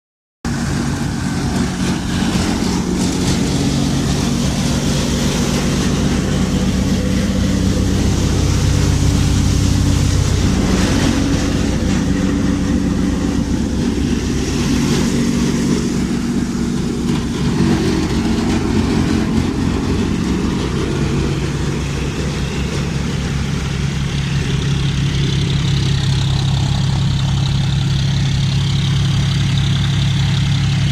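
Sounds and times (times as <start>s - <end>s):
tractor diesel engine running: 0.4s - 30.9s
thresher running: 0.5s - 30.9s.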